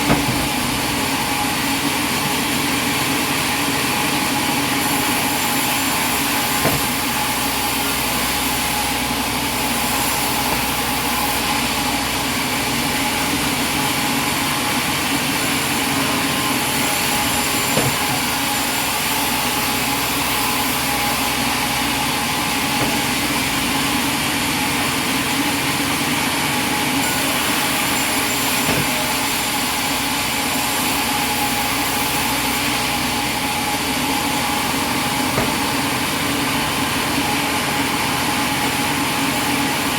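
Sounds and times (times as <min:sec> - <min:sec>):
sharp knocks: 0:00.0 - 0:00.8, 0:06.5 - 0:07.3, 0:10.2 - 0:11.3, 0:17.4 - 0:18.4, 0:22.7 - 0:23.5, 0:28.6 - 0:29.3, 0:35.3 - 0:35.9
sawmill machinery humming: 0:00.0 - 0:39.9.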